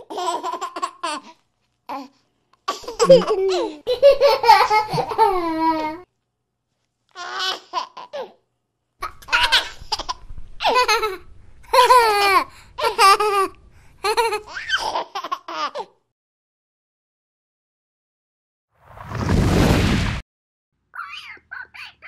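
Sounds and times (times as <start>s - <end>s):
baby giggling: 2.7s - 6.0s, 9.0s - 15.9s.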